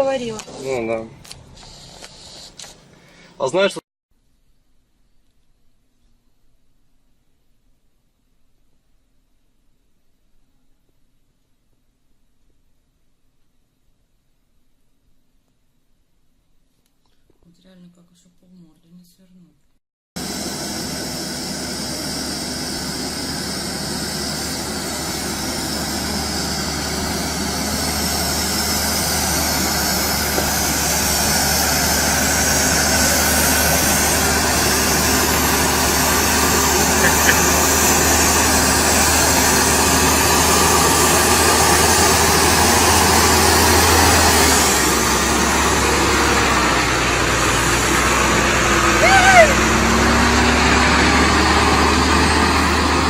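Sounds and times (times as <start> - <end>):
road noise: 0.0 - 3.5, 20.2 - 53.0
vehicle engine running: 20.2 - 53.0.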